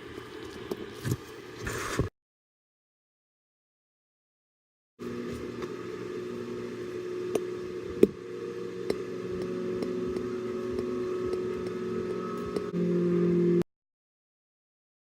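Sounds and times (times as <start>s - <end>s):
motor hum: 5.0s - 13.6s
light regular ticks: 8.8s - 12.7s.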